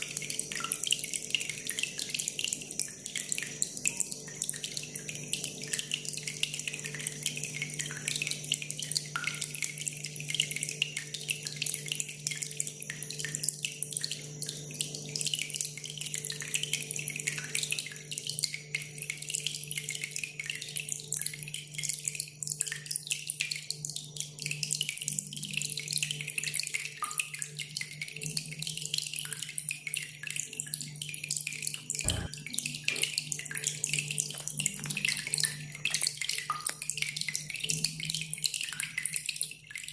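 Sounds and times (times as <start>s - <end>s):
water trickling and dripping: 0.0s - 39.9s
low knock: 32.1s - 32.3s.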